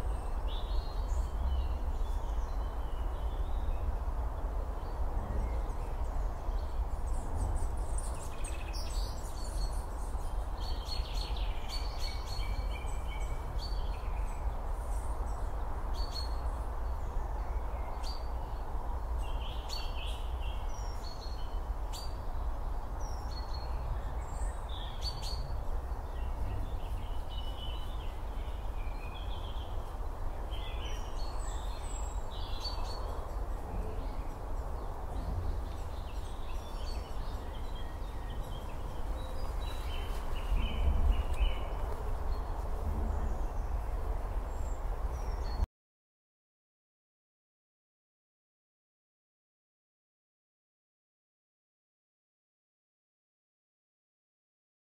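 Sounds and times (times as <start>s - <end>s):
small birds chirping: 4.8s - 45.7s
low outdoor rumble: 33.0s - 45.2s.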